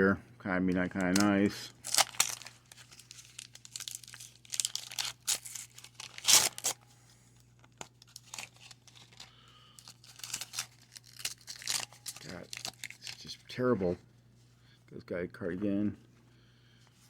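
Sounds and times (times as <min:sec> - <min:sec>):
stiff cards rustling: 0:00.7 - 0:06.8, 0:07.6 - 0:13.8
wax paper pack crinkling and tearing: 0:00.7 - 0:06.8, 0:07.4 - 0:13.5.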